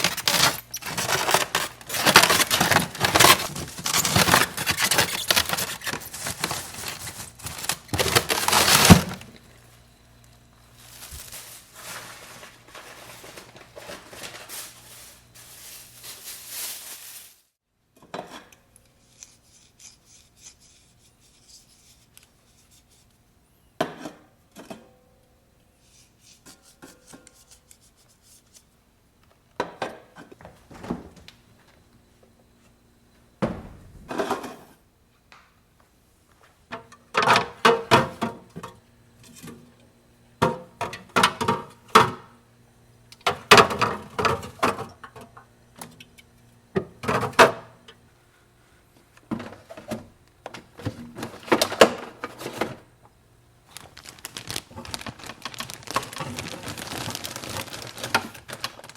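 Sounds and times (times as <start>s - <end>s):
containers clattering: 0.0s - 9.3s, 53.7s - 58.9s
packages rustling: 0.0s - 9.3s, 10.6s - 17.6s, 53.6s - 58.9s.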